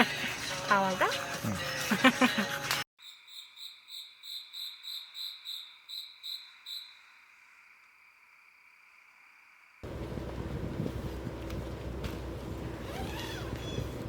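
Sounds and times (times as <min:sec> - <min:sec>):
cricket chirping: 0:03.0 - 0:09.8
insects trilling: 0:03.0 - 0:09.8.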